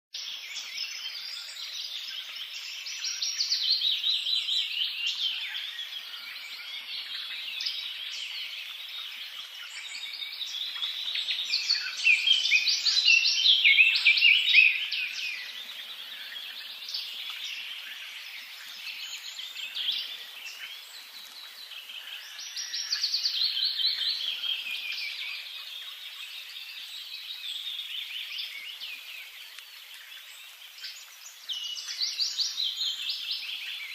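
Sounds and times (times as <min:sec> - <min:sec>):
birds singing: 0:00.2 - 0:33.9.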